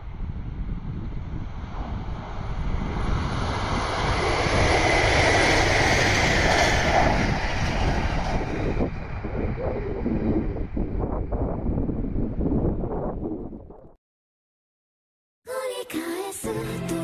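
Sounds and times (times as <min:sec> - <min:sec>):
diesel train passing: 0:00.0 - 0:09.4.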